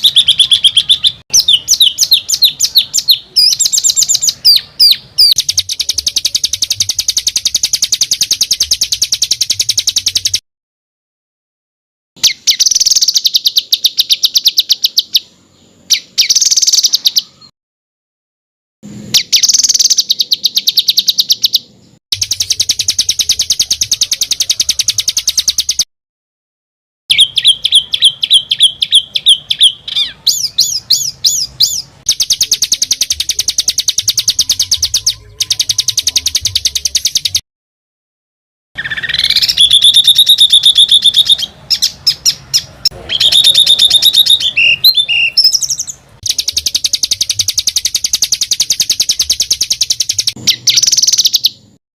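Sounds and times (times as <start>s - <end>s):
songbirds trilling and chipping: 0.0s - 10.4s, 12.2s - 17.5s, 27.1s - 37.4s, 38.8s - 51.8s.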